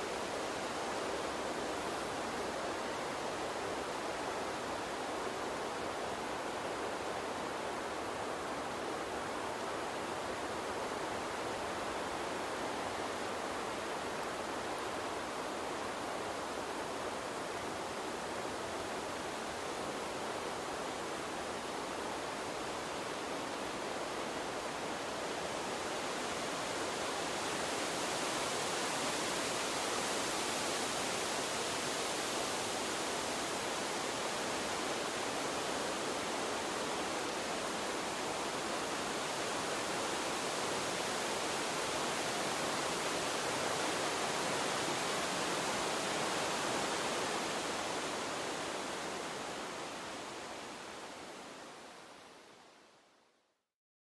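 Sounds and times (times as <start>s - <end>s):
water stream flowing: 0.0s - 52.7s.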